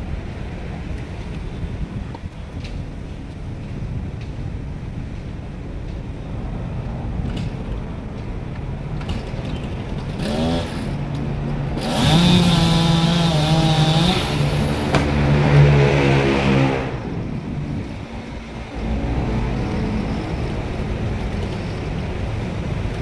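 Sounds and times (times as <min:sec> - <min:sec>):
chainsaw revving: 0:10.2 - 0:11.0, 0:11.8 - 0:16.9.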